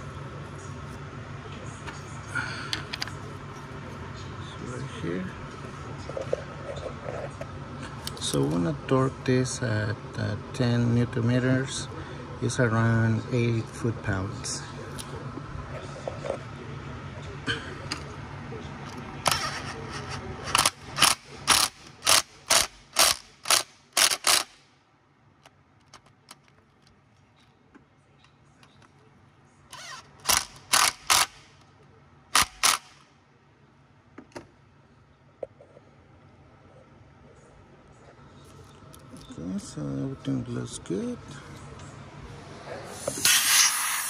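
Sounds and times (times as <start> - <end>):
torque wrench clicking: 20.5 - 24.6, 29.8 - 31.5, 32.4 - 33.0.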